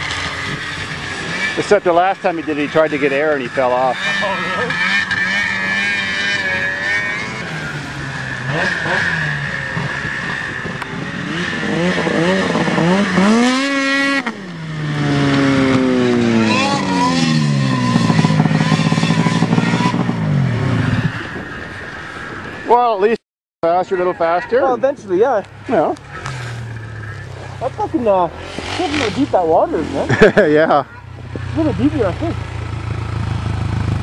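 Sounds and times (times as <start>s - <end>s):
quad engine revving: 0.0s - 21.2s, 25.6s - 34.0s.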